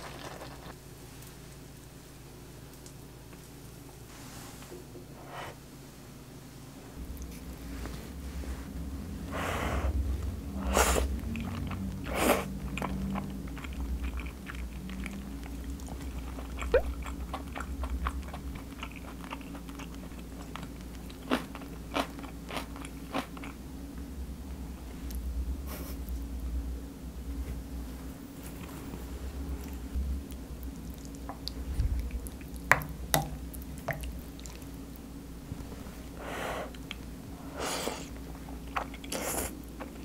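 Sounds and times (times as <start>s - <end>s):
chewing: 0.0s - 0.8s, 11.1s - 23.6s, 29.6s - 32.8s, 33.4s - 35.0s, 38.1s - 40.0s
noodles slurped: 0.0s - 0.8s.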